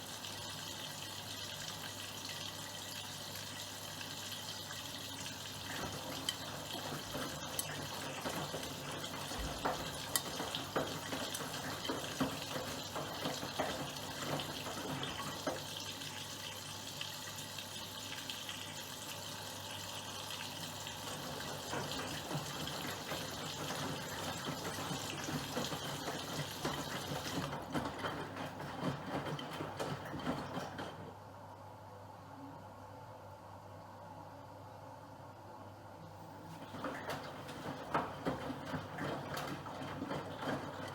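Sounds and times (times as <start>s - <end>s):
water rushing into washing machine: 0.0s - 31.5s, 36.3s - 40.9s
small splashes and knocks: 5.6s - 16.4s, 20.9s - 31.2s, 36.5s - 40.9s.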